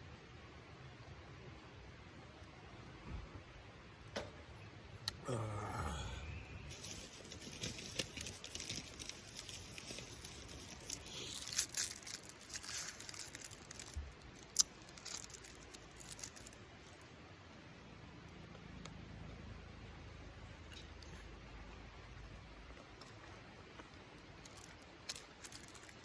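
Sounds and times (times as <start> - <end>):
crinkling and rustling handling: 6.7 - 17.0, 22.8 - 26.0.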